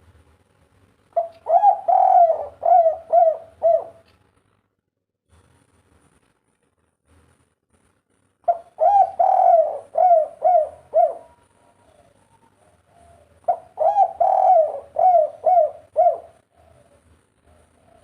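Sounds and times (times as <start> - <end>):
dove cooing: 1.1 - 4.1, 8.5 - 18.0.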